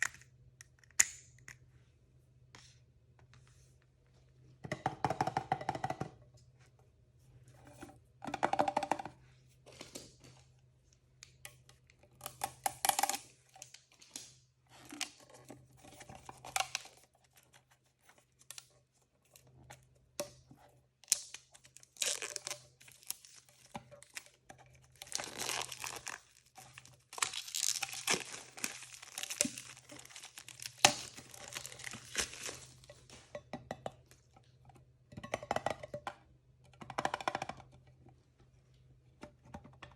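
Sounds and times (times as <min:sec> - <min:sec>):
packaging tearing and crinkling: 0:21.8 - 0:23.4, 0:25.0 - 0:32.9.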